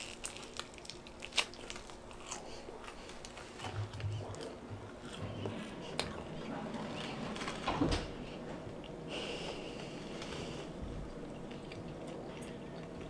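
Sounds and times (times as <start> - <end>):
chewing crunchy crust: 0.0 - 7.6, 8.7 - 13.0.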